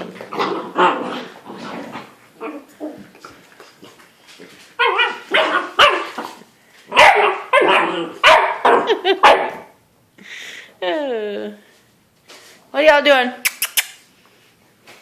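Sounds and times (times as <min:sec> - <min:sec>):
puppies barking and yipping: 0:04.8 - 0:06.4.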